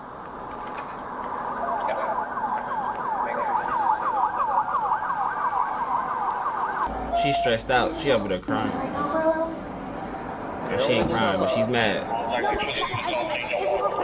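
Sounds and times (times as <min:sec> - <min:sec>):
emergency siren yelping: 0:01.4 - 0:07.7.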